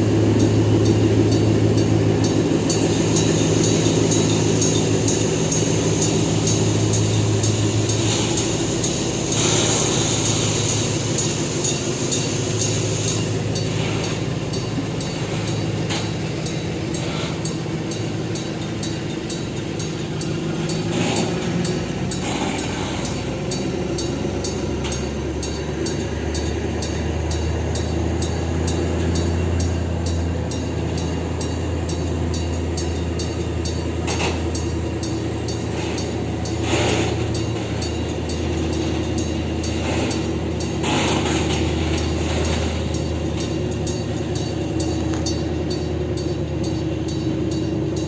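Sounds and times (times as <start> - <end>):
diesel locomotive droning: 0.0 - 48.0
train wheels clicking over rail joints: 0.0 - 48.0
high hiss: 2.8 - 14.4.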